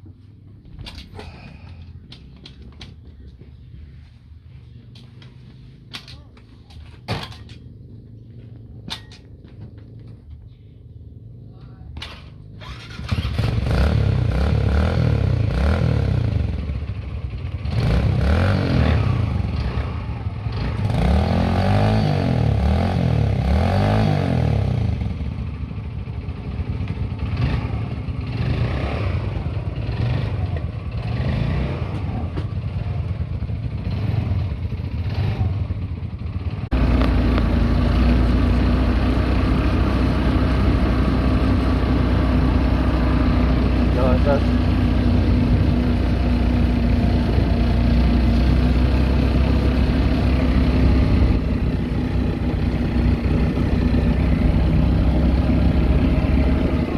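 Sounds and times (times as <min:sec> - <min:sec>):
dirt bike engine revving: 0:12.5 - 0:16.6, 0:17.6 - 0:25.0, 0:27.2 - 0:32.3, 0:33.7 - 0:35.7, 0:36.7 - 0:56.9.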